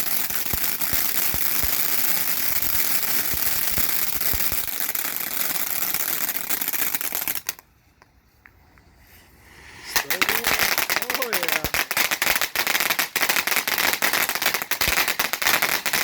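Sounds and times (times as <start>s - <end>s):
low firework pops: 0.0s - 5.0s
firework fountain hissing: 0.0s - 7.6s, 9.2s - 16.0s
firework crackling: 0.0s - 7.7s, 9.1s - 16.0s.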